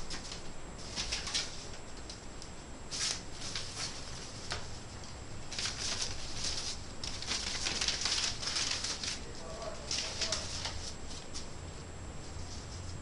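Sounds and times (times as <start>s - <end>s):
wood fire crackling and popping: 4.5s - 10.8s.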